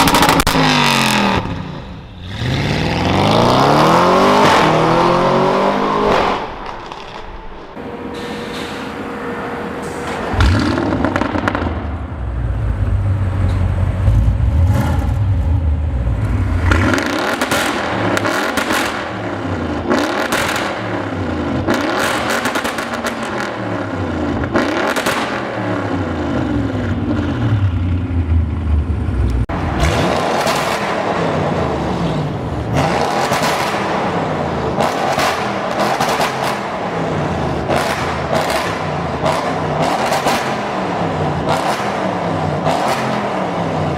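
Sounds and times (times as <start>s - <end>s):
car engine accelerating hard: 0.0s - 7.9s.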